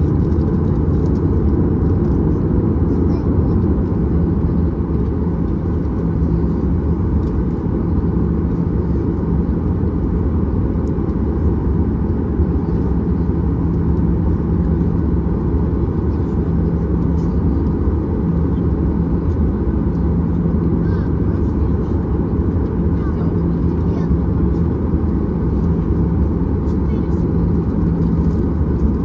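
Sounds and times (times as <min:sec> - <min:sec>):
aircraft cabin low rumble: 0:00.0 - 0:29.0
constant low hum: 0:00.0 - 0:29.0.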